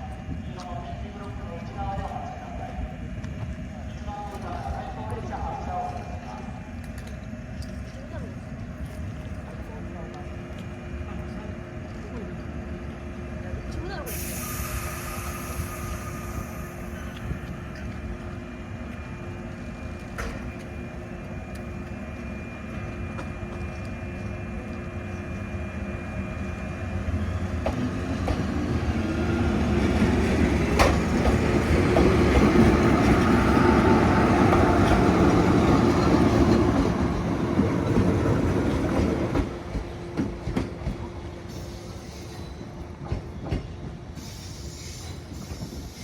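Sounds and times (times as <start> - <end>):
train wheels clattering over rail joints: 29.9 - 33.4.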